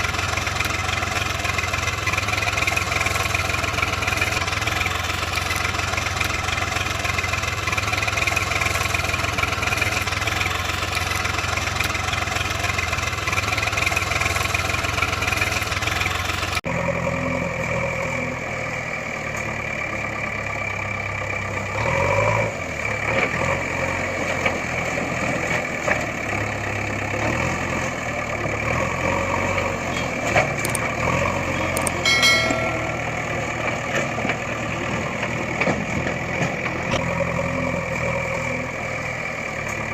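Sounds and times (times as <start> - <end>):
engine idling: 0.0 - 21.8, 22.5 - 39.9
short clicks: 30.6 - 30.9, 31.7 - 32.0.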